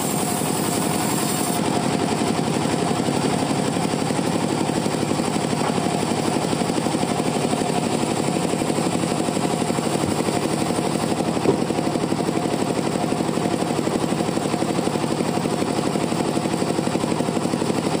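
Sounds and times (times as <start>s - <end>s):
band sawmill running: 0.0s - 18.0s
sharp knock: 5.6s - 6.0s.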